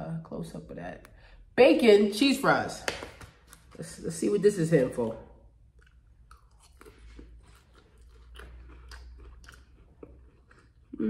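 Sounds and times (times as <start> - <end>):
person chewing crunchy food: 5.6 - 11.0.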